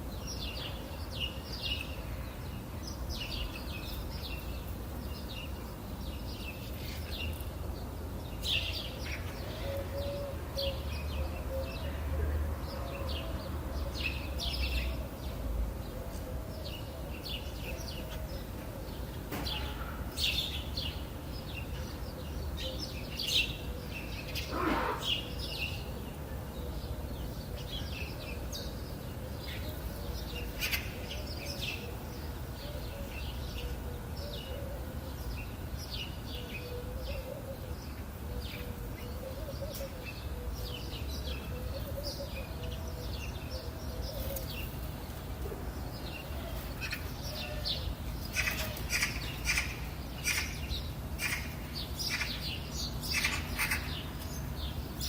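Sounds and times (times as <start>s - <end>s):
wild birds chirping: 0.0s - 55.0s
low bird call: 24.4s - 25.4s.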